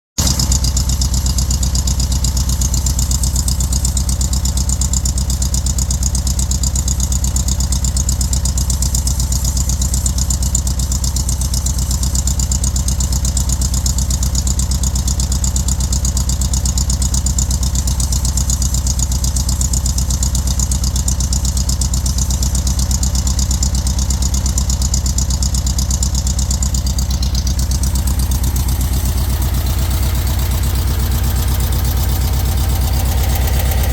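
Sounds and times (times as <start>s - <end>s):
car engine idling: 0.2s - 33.9s.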